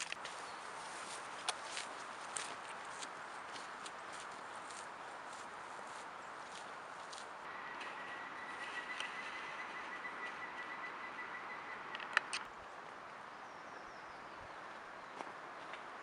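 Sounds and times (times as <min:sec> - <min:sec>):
sharp clicks: 0:11.7 - 0:12.5.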